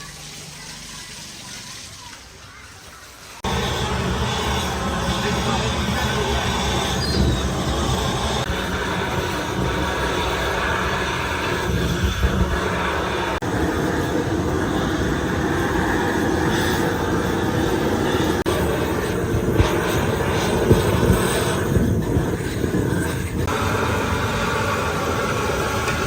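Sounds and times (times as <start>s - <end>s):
shop machinery droning: 0.0s - 26.0s.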